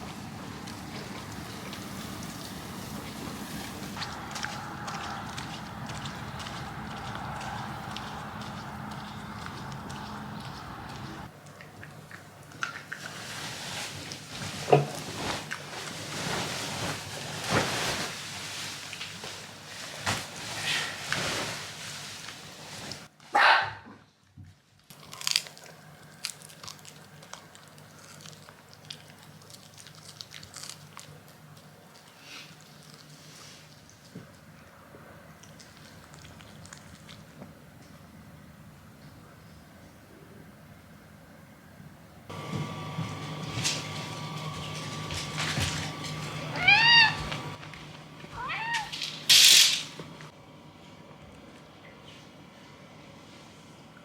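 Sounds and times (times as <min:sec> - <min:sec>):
steady low hum: 0:00.0 - 0:11.7, 0:37.2 - 0:48.4
dog chewing and crunching: 0:00.0 - 0:14.3, 0:24.9 - 0:38.0, 0:42.3 - 0:47.8
cat meowing: 0:46.4 - 0:47.6, 0:48.3 - 0:49.0.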